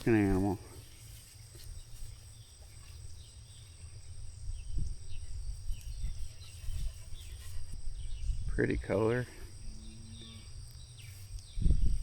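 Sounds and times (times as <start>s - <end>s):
insect trill: 0.0s - 12.0s
faint bird chirps: 0.2s - 12.0s.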